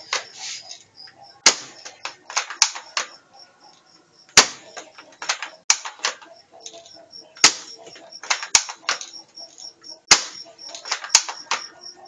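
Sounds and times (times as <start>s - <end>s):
airsoft gun clacks and snaps: 1.8s - 3.1s, 4.7s - 7.6s, 8.2s - 9.1s, 10.2s - 11.7s.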